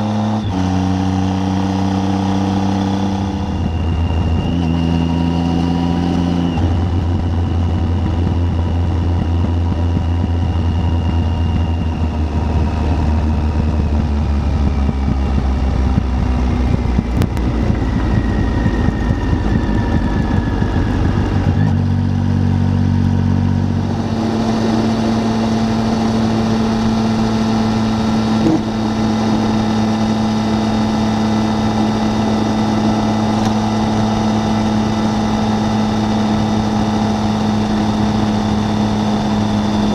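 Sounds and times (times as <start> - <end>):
motorcycle engine running: 0.0 - 39.9
wind buffeting microphone: 6.7 - 21.6.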